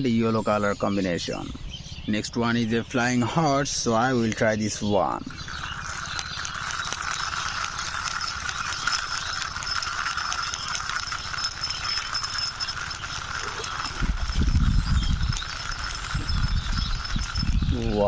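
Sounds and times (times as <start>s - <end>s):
plastic toy rolling and clattering: 4.0s - 18.0s.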